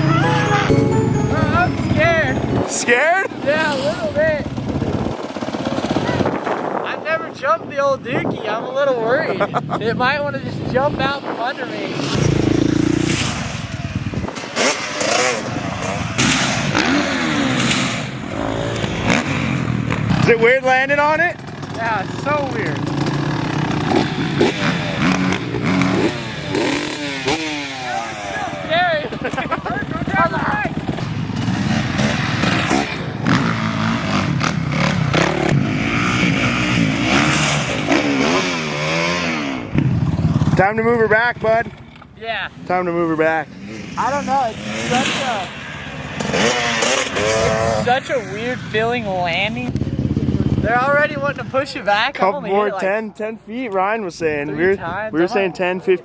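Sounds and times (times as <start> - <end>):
dirt bike engine revving: 11.9 - 20.3, 21.4 - 30.1, 30.7 - 40.6, 44.0 - 48.6.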